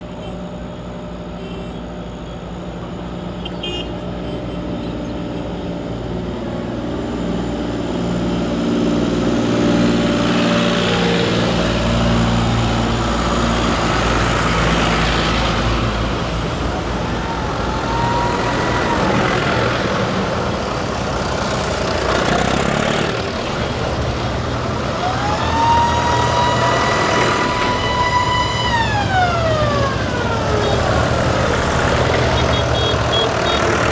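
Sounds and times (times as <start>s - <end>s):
tractor engines passing: 0.0s - 33.9s
siren-like tone: 6.9s - 20.7s, 24.8s - 33.9s.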